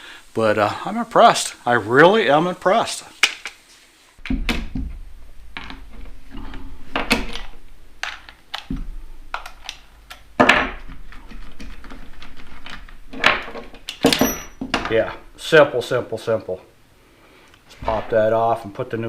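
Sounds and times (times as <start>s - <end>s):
clicks and knocks of handling: 5.5s - 15.0s.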